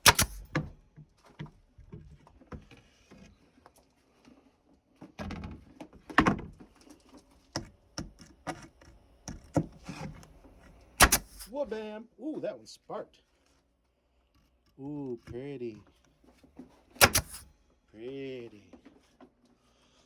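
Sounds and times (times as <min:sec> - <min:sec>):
pneumatic nail remover cracks: 0:00.0 - 0:00.6, 0:10.8 - 0:11.5, 0:17.0 - 0:17.5.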